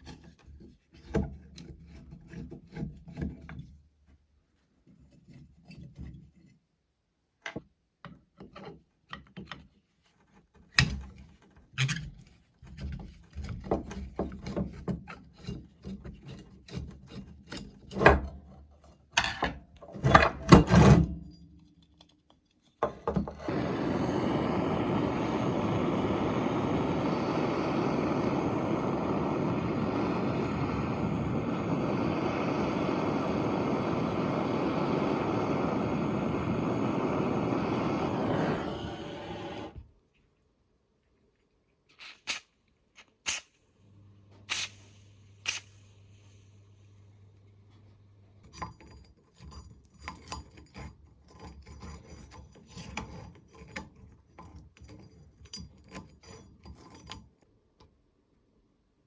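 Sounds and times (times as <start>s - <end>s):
steady machine noise: 23.5s - 39.8s.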